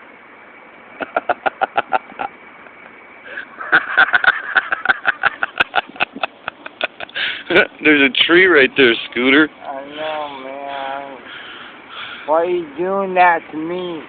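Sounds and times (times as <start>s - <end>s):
person laughing: 1.0s - 2.3s, 3.3s - 7.8s.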